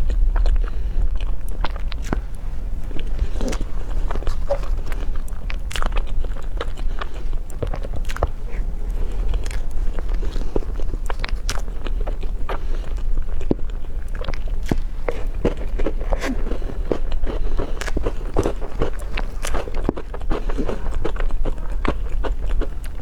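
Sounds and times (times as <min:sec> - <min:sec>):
person chewing crunchy food: 0:00.0 - 0:23.0.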